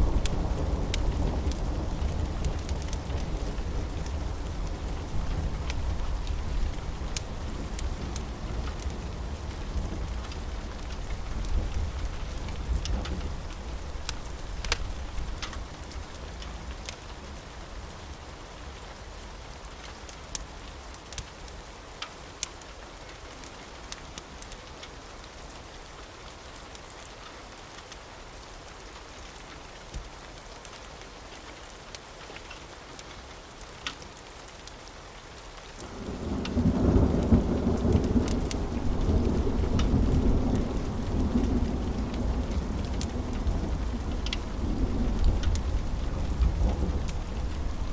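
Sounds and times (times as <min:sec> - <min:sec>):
thunder rumbling: 0:00.0 - 0:15.9, 0:35.9 - 0:47.9
steady rain: 0:00.0 - 0:47.9.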